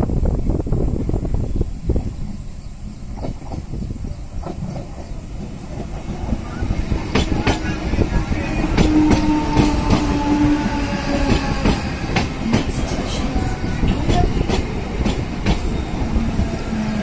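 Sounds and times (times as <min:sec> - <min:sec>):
train rumble: 0:00.0 - 0:17.0
wheels clicking over rail joints: 0:04.4 - 0:16.2.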